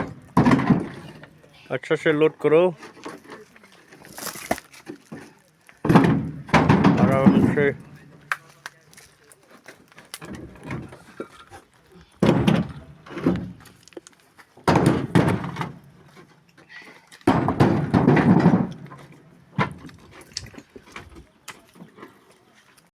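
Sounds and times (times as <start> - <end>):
stone crashing into truck bed: 0.0 - 1.3, 5.8 - 7.8, 12.2 - 13.8, 14.6 - 15.9, 17.2 - 19.9
rattling stones: 2.8 - 11.0.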